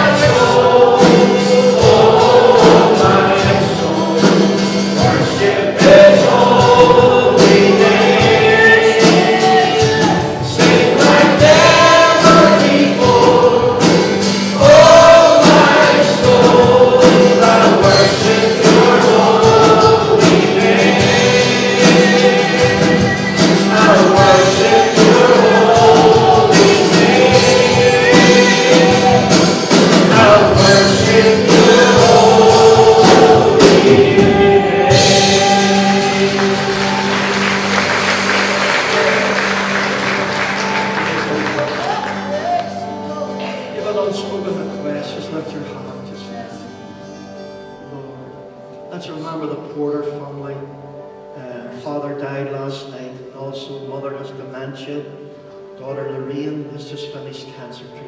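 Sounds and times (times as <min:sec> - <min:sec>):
congregation singing a hymn: 0:00.0 - 0:50.7
instrumental accompaniment: 0:00.0 - 0:51.5.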